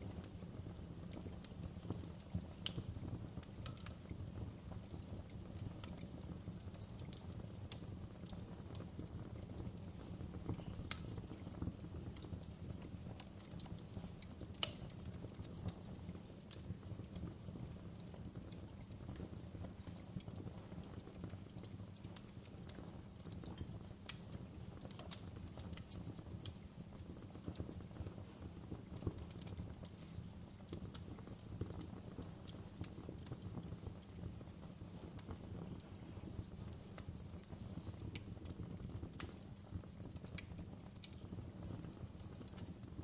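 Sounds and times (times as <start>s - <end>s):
low rumble of flames: 0.0s - 43.0s
wood fire crackling: 0.0s - 43.0s.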